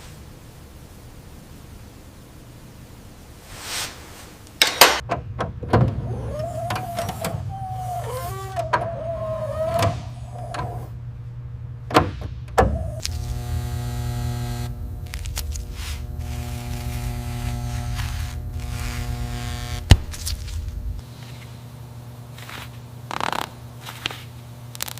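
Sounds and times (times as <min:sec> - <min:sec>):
steady low hum: 0:04.3 - 0:24.9
electric buzz: 0:12.7 - 0:21.0
small electric motor whirring: 0:12.8 - 0:20.8.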